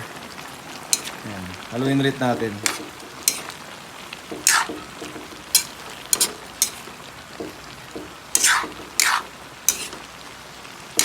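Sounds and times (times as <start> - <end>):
vegetables simmering hiss: 0.0 - 11.0
utensil scraping a pan: 0.9 - 1.2, 2.3 - 3.7, 4.3 - 10.2.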